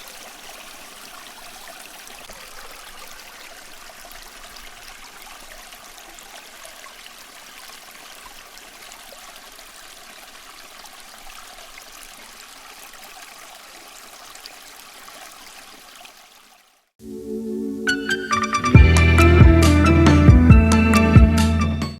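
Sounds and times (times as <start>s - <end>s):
water trickling in fountain: 0.0s - 17.0s.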